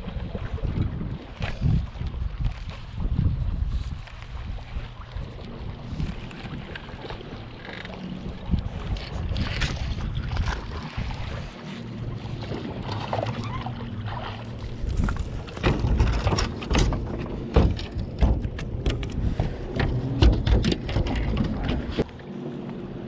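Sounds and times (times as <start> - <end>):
fish thumping in a boat: 14.9 - 22.0.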